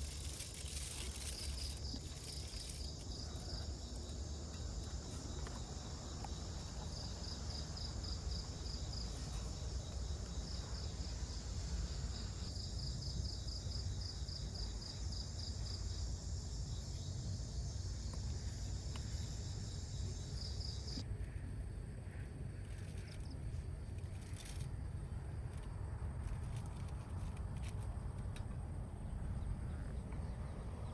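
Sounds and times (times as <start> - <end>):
night insects chirping: 0.0 - 21.4.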